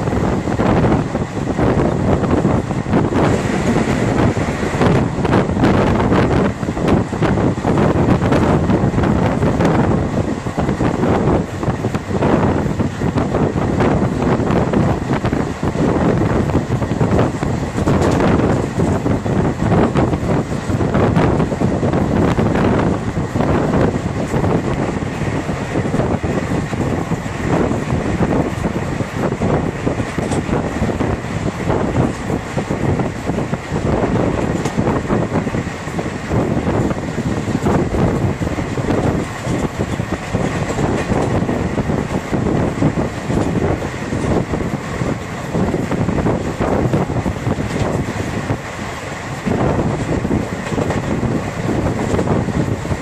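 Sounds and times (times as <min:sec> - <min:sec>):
train wheels rumbling on rails: 0:00.0 - 0:53.0
wind buffeting microphone: 0:00.0 - 0:53.0.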